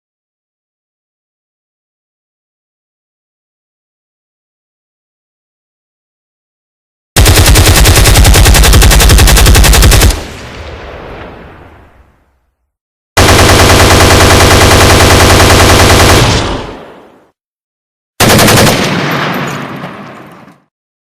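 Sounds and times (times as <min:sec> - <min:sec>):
automatic gunfire: 0:07.2 - 0:10.4, 0:13.2 - 0:17.0, 0:18.2 - 0:20.1.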